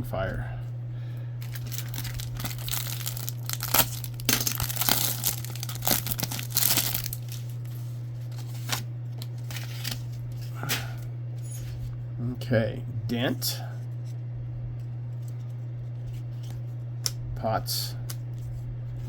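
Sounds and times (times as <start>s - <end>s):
steady low hum: 0.0s - 19.0s
wrapper tearing and crinkling: 1.4s - 10.2s.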